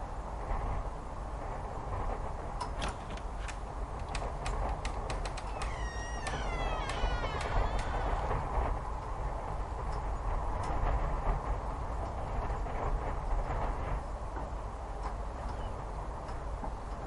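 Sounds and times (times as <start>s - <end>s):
low rumbling drone: 3.7s - 9.7s
falling pitched call: 5.6s - 8.3s.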